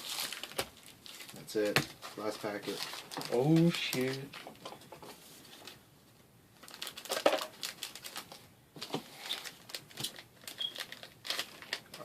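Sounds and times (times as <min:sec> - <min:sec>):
foil wrapper crinkling and tearing: 0:00.0 - 0:04.3, 0:06.6 - 0:08.4, 0:09.2 - 0:12.0.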